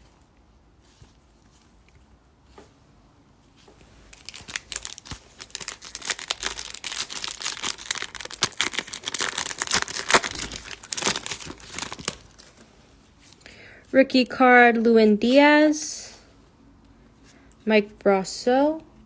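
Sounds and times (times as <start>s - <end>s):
wrapper tearing and crinkling: 3.9s - 12.6s.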